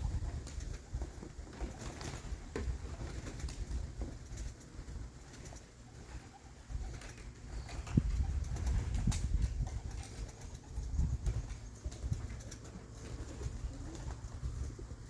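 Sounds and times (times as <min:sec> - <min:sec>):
low rumble of movement: 0:00.0 - 0:15.0
pigeons cooing: 0:09.5 - 0:15.0.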